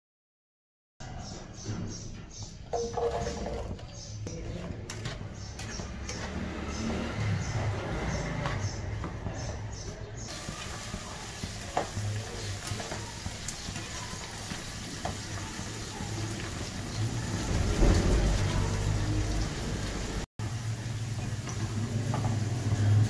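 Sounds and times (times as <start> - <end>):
okra sizzling in oil: 10.3 - 23.0.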